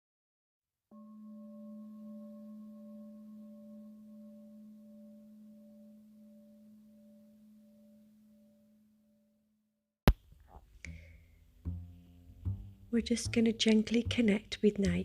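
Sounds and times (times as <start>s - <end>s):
singing bowl ringing: 0.9s - 9.3s.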